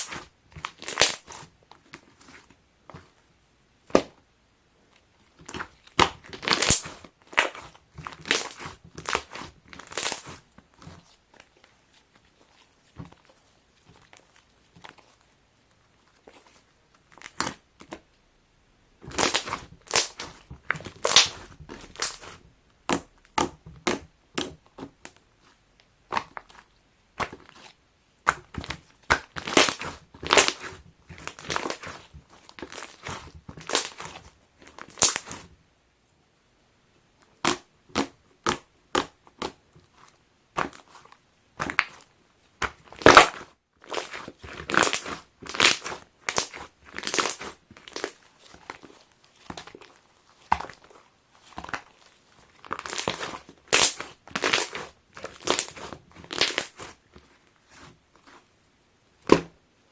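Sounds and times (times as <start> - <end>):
slime squished by hand: 0.0 - 2.4, 19.0 - 35.4, 37.4 - 58.4.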